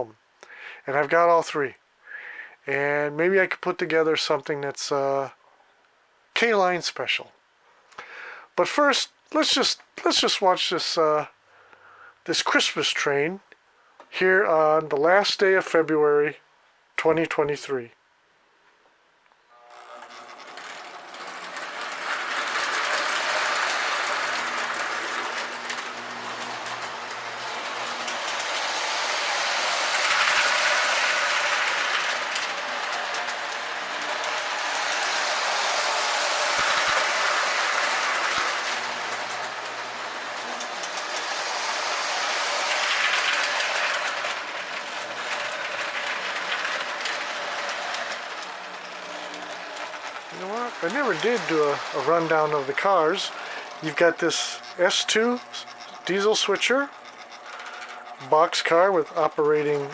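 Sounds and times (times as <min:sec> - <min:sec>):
toy train motor whirring: 0:19.6 - 0:59.9
wheels clattering over rails: 0:20.0 - 0:59.9.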